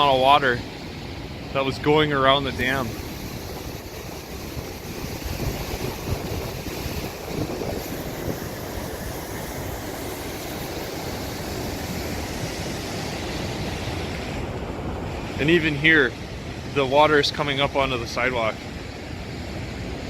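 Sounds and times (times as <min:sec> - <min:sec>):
river roaring over rocks: 0:00.0 - 0:20.0.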